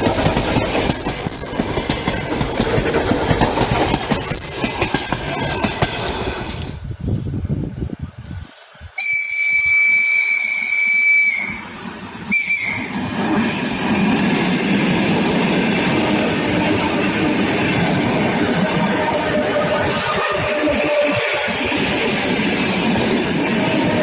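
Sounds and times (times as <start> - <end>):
train running on rails: 0.0 - 24.0
train whistle: 9.0 - 13.0, 18.5 - 21.6.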